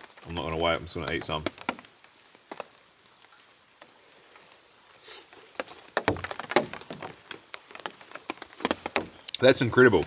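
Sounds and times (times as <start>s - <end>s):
soft rain patter: 0.0s - 10.0s.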